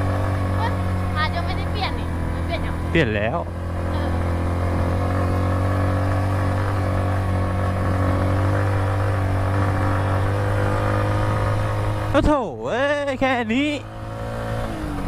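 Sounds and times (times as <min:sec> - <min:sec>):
motorcycle engine under load: 0:00.0 - 0:15.0.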